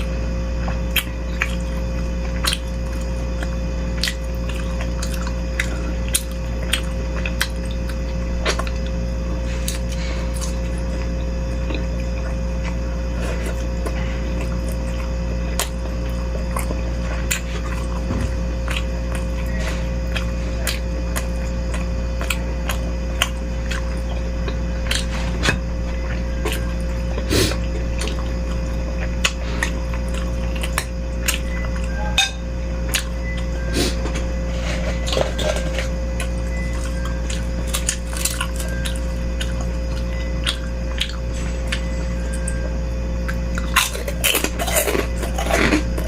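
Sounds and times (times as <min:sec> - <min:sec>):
steady low hum: 0:00.0 - 0:46.0
cutlery clinking against a bowl: 0:32.2 - 0:32.4.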